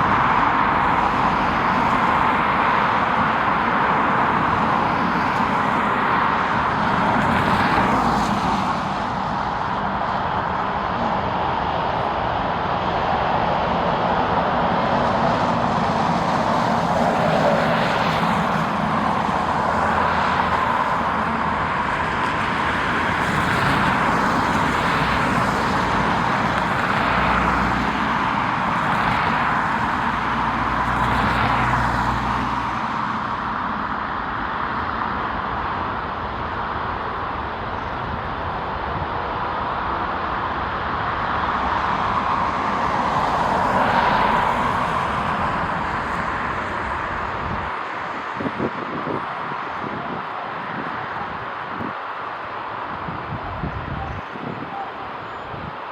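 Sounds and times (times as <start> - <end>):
jet airliner engines passing: 0.0 - 54.8.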